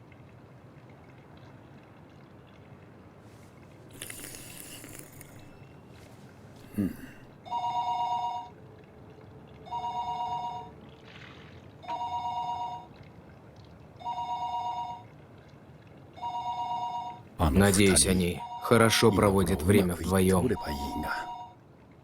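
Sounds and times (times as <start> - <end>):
electronic telephone ringing: 16.2 - 19.2.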